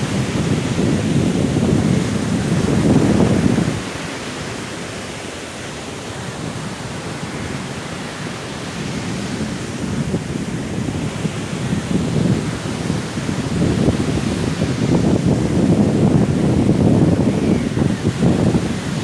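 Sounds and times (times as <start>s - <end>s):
strong wind rushing: 0.0s - 4.6s, 8.7s - 19.0s
sea waves surging: 0.0s - 19.0s.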